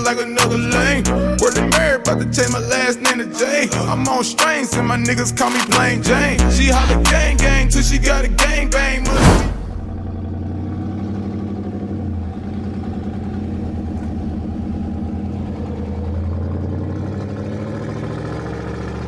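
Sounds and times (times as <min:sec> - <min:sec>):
truck engine idling: 0:04.8 - 0:17.3.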